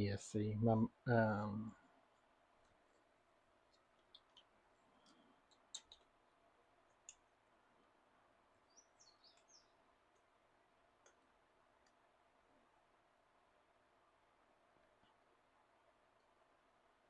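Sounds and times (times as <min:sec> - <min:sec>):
faint small clicks: 0:03.7 - 0:07.3, 0:11.0 - 0:12.0.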